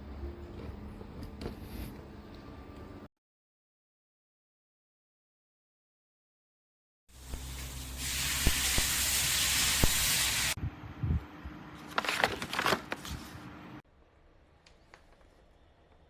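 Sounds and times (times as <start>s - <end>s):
loud steady hiss: 7.2s - 10.6s.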